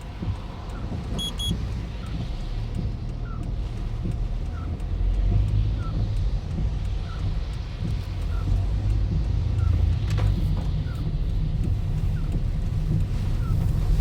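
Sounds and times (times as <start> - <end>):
car engine and road noise: 0.0 - 14.0
double electronic beep: 1.2 - 1.6.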